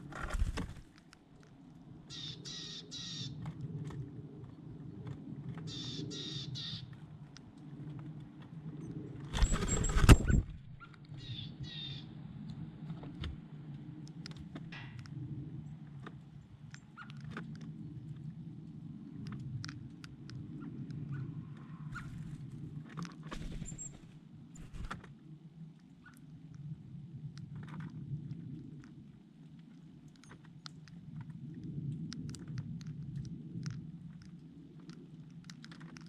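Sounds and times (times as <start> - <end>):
birds giving harsh calls: 2.1 - 3.4, 5.7 - 6.8
steady low rumble: 3.3 - 36.0
small clicks: 29.8 - 36.0.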